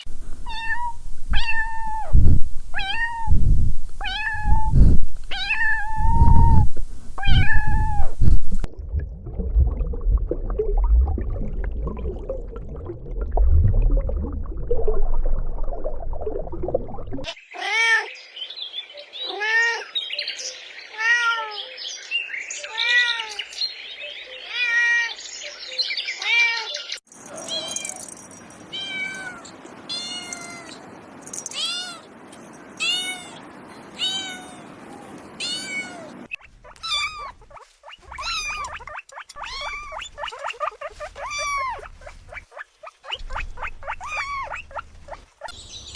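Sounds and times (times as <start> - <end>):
kittens meowing: 27.1 - 37.4, 38.2 - 38.8, 39.4 - 40.0.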